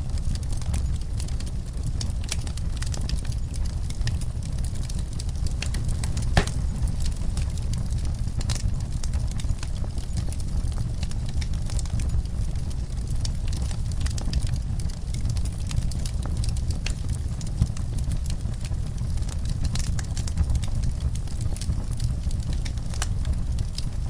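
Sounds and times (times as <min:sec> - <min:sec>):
steady low rumble: 0:00.0 - 0:09.4
wood fire crackling and popping: 0:00.0 - 0:24.0.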